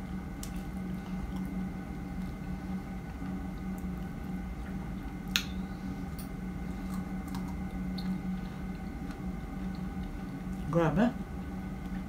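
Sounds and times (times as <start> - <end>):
steady low hum: 0.0 - 12.0
wet chewing of strawberries: 6.6 - 10.7.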